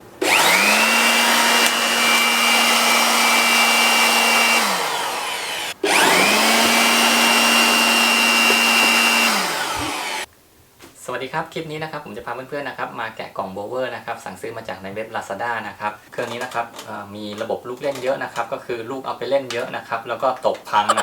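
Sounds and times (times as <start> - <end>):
electric blower running: 0.0 - 10.3.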